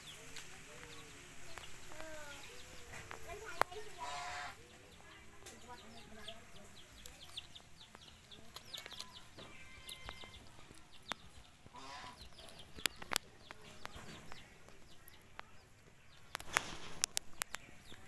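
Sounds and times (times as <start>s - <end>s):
birds chirping: 0.0s - 18.0s
sharp clicks: 7.0s - 18.0s.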